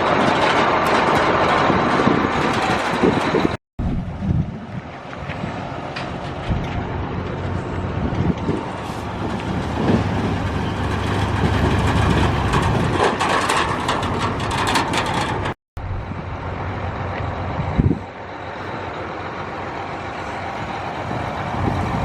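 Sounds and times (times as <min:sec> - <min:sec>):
rattling and clanking: 0:00.0 - 0:03.6, 0:05.9 - 0:15.6
tractor engine running: 0:00.0 - 0:22.0.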